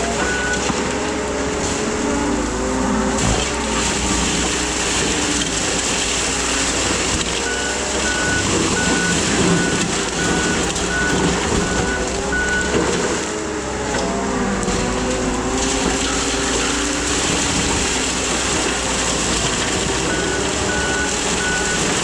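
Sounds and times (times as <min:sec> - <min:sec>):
skid steer engine running: 0:00.0 - 0:22.0
backup alarm beeping: 0:07.4 - 0:12.8, 0:20.1 - 0:21.9.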